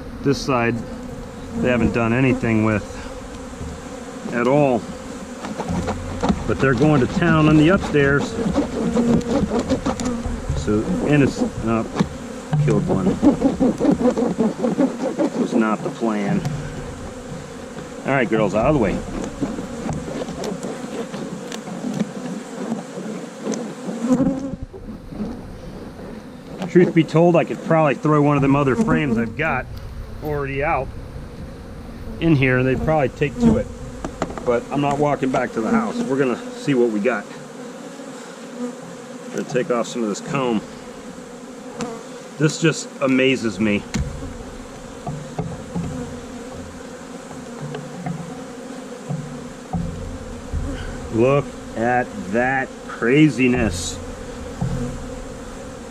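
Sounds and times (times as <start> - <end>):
bees buzzing: 0.0 - 55.9
single bees whining past: 0.0 - 55.9
faint knocks: 5.4 - 7.8, 8.5 - 10.8, 11.5 - 14.4, 16.3 - 18.0, 43.9 - 48.4, 49.0 - 51.8, 53.6 - 55.9.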